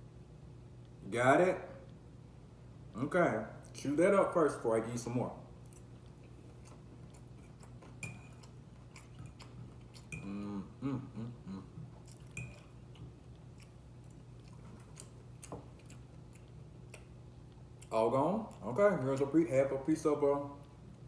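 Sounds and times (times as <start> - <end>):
chewing with wet clicks: 5.6 - 10.4, 11.8 - 19.3
fork clinking on a plate: 8.0 - 8.5, 12.3 - 12.7
person humming: 10.2 - 11.8.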